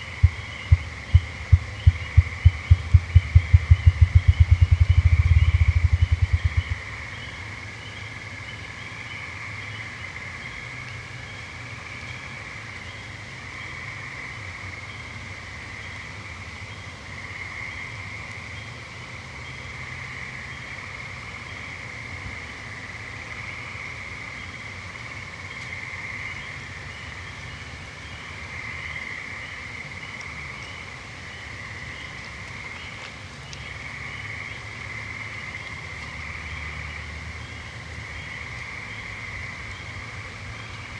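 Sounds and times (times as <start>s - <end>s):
low steady rumble: 0.0s - 7.1s
frogs and toads trilling: 0.0s - 40.9s.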